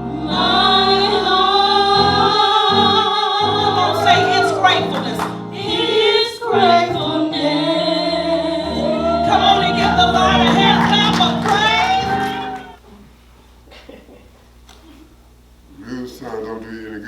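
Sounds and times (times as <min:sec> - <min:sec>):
keyboard chords: 0:00.0 - 0:12.8
voices singing gospel: 0:00.0 - 0:12.8.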